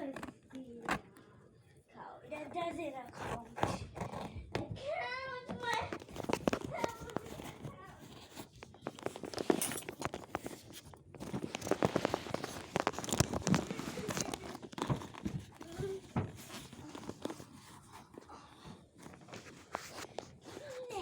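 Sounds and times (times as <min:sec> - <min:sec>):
stitching ripping out of fabric: 0:03.0 - 0:04.5, 0:05.9 - 0:17.7.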